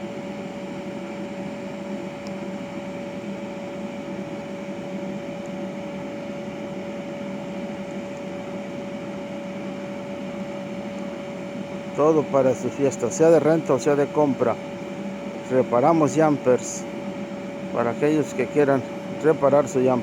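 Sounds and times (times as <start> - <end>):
motor humming: 0.0 - 20.0
air noise: 9.8 - 20.0.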